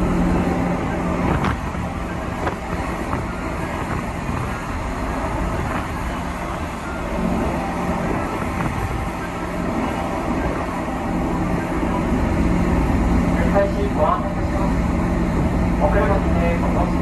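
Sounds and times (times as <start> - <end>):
vehicle running noise: 0.0 - 17.0.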